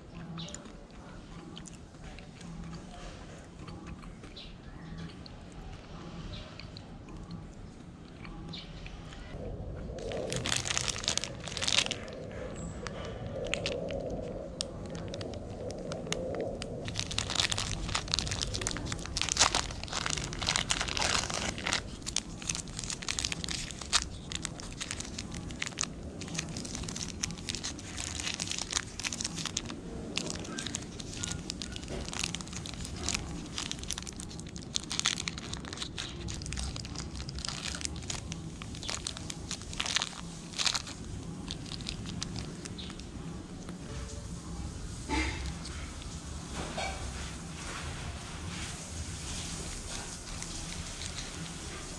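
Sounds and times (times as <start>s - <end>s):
plastic wrapper crinkling and tearing: 9.9s - 44.0s, 44.9s - 51.9s
crunchy bites: 10.0s - 43.8s.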